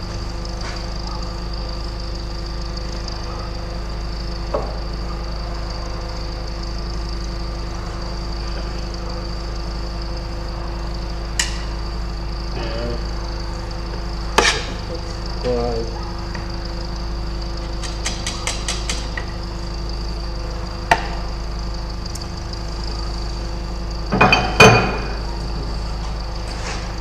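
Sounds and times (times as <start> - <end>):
machine hum: 0.0 - 27.0
sharp metallic clicks: 17.8 - 19.3.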